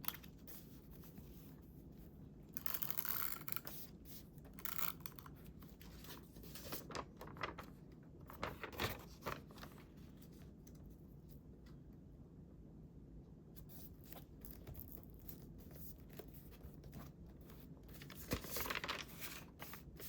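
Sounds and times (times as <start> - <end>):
paper rustling and crinkling: 2.6 - 11.4, 13.6 - 20.0.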